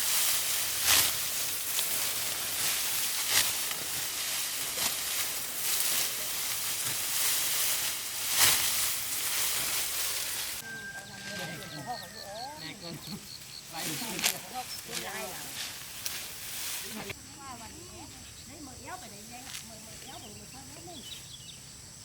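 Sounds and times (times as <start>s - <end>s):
rice stalks rustling and swishing: 0.0s - 12.2s, 13.3s - 17.6s.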